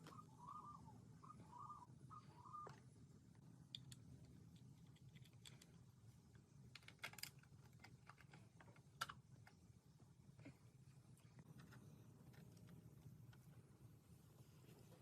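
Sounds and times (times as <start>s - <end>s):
bird chirping: 0.0s - 2.8s.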